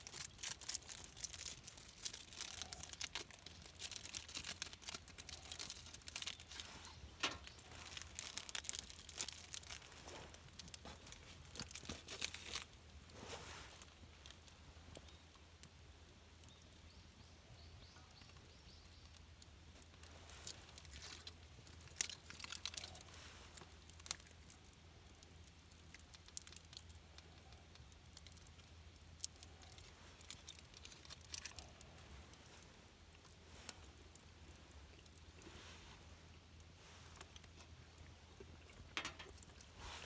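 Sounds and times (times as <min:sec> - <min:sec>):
rustling: 0:00.0 - 0:14.0
faint steady hum: 0:00.0 - 0:40.0.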